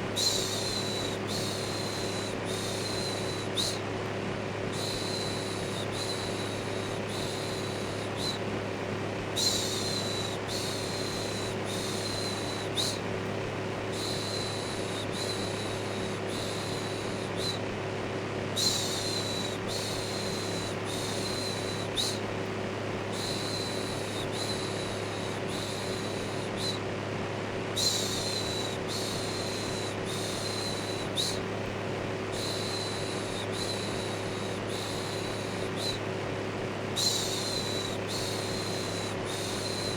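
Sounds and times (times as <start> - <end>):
electric fan humming: 0.0 - 39.9.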